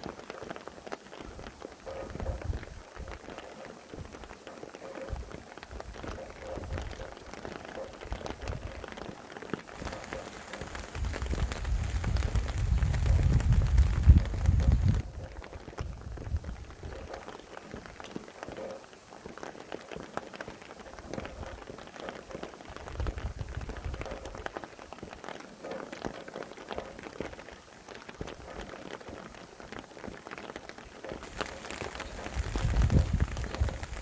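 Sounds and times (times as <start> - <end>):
rain drops striking a surface: 0.0 - 34.0
low rumbling wind gusts: 9.8 - 17.1, 31.2 - 34.0.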